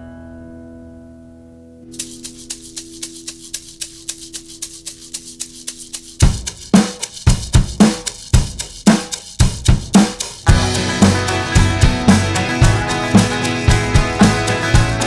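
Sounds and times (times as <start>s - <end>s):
cymbal or shaker ticking: 1.9s - 15.0s
drum kit with kick and snare: 1.9s - 15.0s
held chords: 10.0s - 15.0s.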